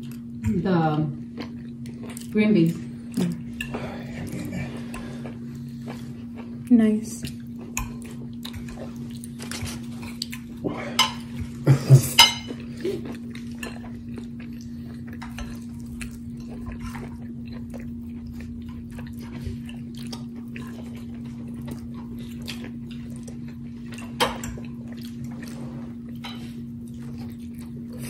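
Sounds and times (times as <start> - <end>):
steady low hum: 0.0 - 28.0
chewing with mouth closed: 1.2 - 11.6, 12.4 - 28.0.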